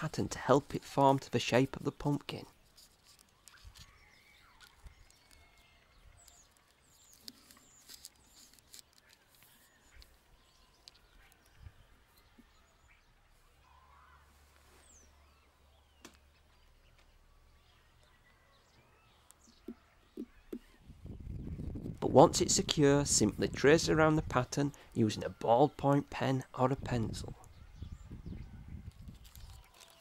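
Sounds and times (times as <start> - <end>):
distant bird chirps: 1.7 - 21.7.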